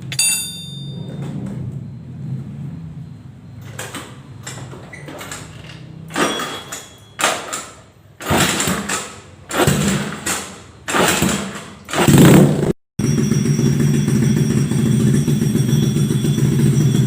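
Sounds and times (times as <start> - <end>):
motorcycle engine revving: 8.2 - 17.0.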